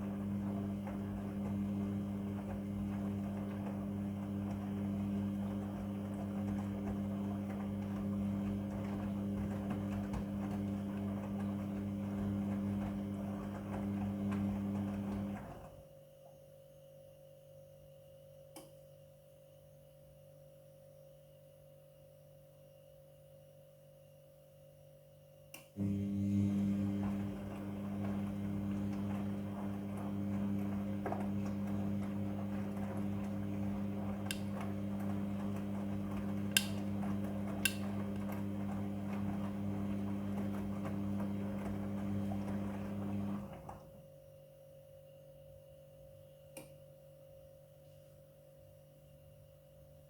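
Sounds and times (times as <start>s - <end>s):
washing machine electric hum: 0.0s - 50.0s
washing machine switch click: 36.2s - 38.4s.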